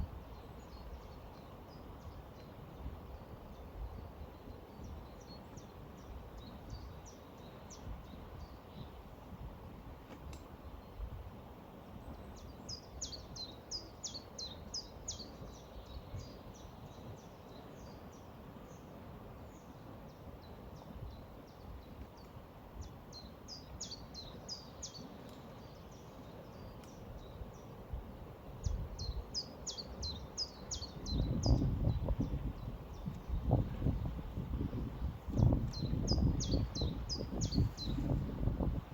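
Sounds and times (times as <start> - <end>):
songbird chirping: 28.6 - 33.7.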